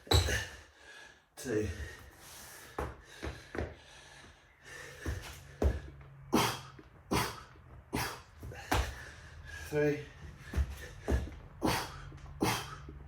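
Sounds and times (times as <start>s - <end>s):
body thumping on a mat: 8.4s - 9.0s
man exhaling forcefully: 11.0s - 12.9s.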